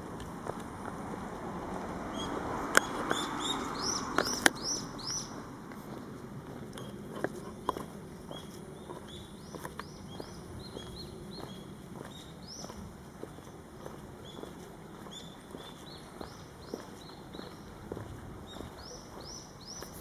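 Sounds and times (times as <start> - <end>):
steady outdoor hiss: 0.0 - 20.0
small bird calling: 2.1 - 5.4, 14.2 - 17.8.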